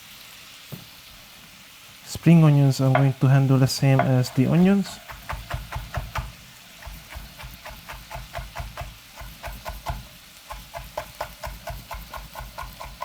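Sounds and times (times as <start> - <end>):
knife chopping on cutting board: 3.0 - 3.2, 3.9 - 13.0.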